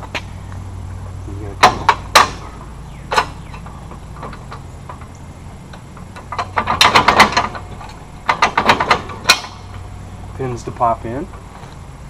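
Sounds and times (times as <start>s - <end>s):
metal hitch clicks and clinks: 3.0s - 9.8s.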